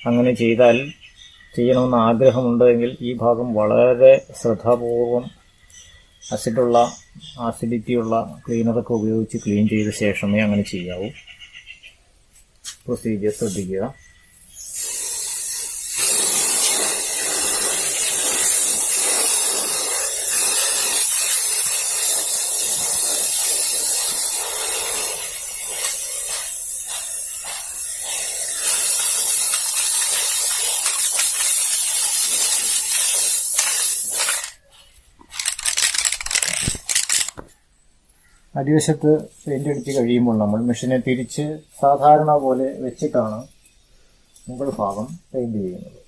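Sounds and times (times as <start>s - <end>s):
spray can hissing: 14.6s - 34.6s, 35.3s - 37.3s
short clicks: 35.3s - 37.5s.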